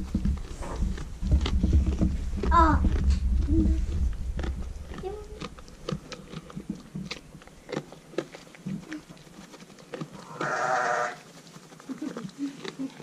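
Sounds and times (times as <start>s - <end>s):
sheep bleating: 10.3s - 11.2s.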